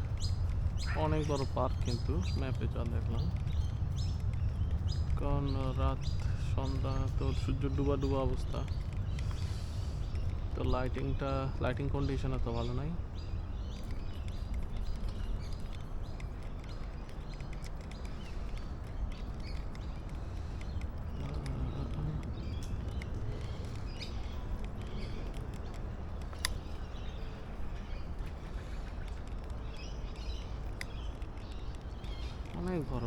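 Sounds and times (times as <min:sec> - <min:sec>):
birds chirping: 0:00.0 - 0:33.0
steady low rumble: 0:00.0 - 0:33.0.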